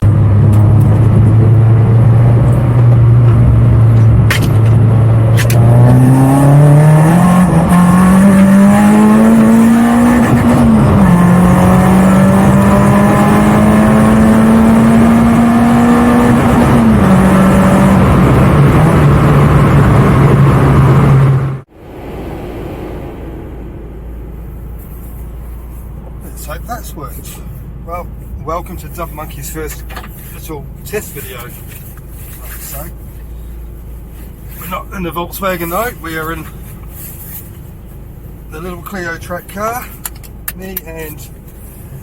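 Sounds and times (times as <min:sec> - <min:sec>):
car engine accelerating loudly: 0:00.0 - 0:27.0.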